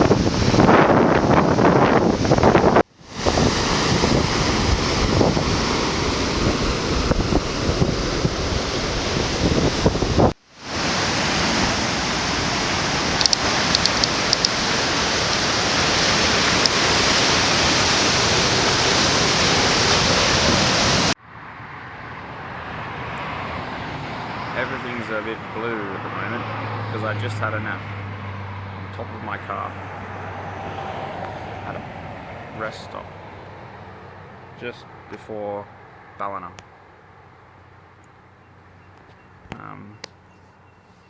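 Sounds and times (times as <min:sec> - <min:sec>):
wind buffeting microphone: 0:00.0 - 0:21.1
surf washing: 0:00.0 - 0:21.2.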